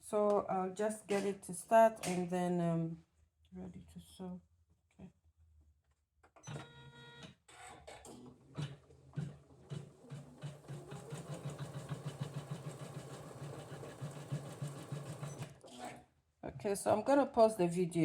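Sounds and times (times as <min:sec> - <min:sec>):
sewing machine needle stitching: 0:07.5 - 0:15.9
sewing machine whine: 0:08.6 - 0:15.6.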